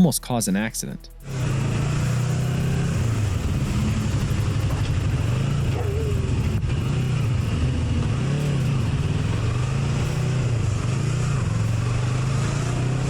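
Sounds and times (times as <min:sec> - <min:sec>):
motorcycle engine running: 0:01.0 - 0:13.0
steady hiss: 0:01.2 - 0:07.5.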